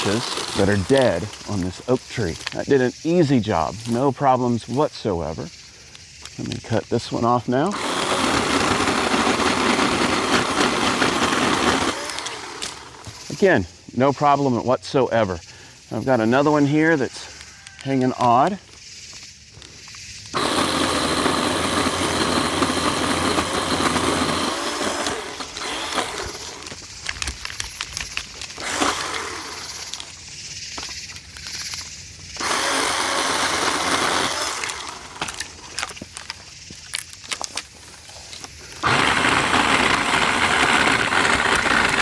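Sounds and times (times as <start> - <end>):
electric saw motor cutting: 0.0 - 2.6, 7.3 - 13.4, 20.3 - 30.2, 32.4 - 36.3, 38.7 - 42.0
branch crackling through leaves: 0.0 - 2.7, 23.6 - 30.3.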